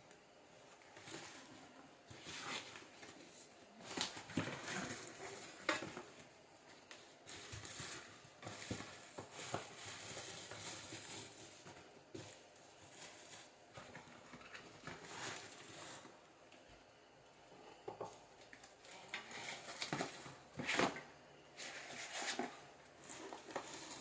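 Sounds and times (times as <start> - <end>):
parcel packaging being handled: 0.9 - 16.2.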